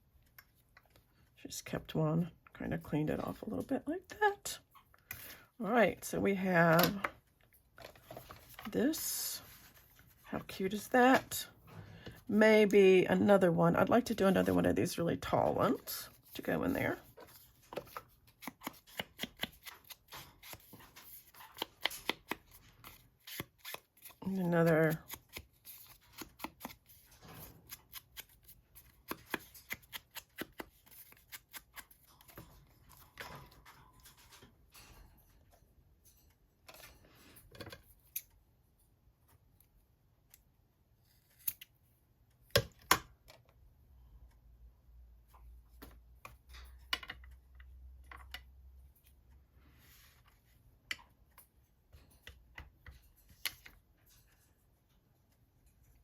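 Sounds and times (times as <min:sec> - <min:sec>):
scissors snipping paper: 0:17.8 - 0:32.4.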